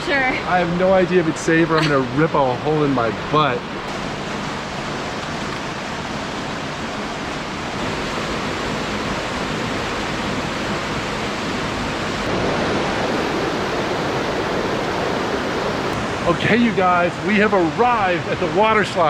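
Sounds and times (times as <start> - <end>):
rushing creek water: 0.0 - 19.0.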